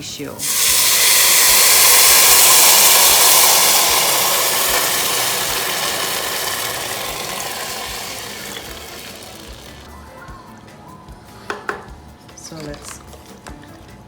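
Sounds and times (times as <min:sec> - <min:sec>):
loud hissing sizzle: 0:00.0 - 0:09.9
water poured into hot pot: 0:00.4 - 0:09.9.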